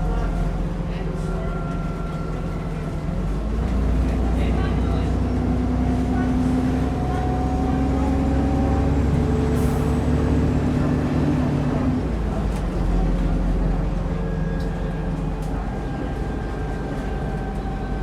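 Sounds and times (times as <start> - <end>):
bus diesel engine droning: 0.0 - 18.0.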